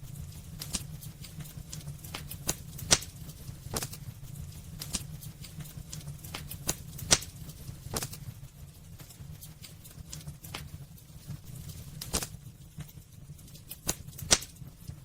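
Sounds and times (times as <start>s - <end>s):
low steady rumble: 0.0s - 15.0s
wood fire crackling: 0.0s - 15.0s.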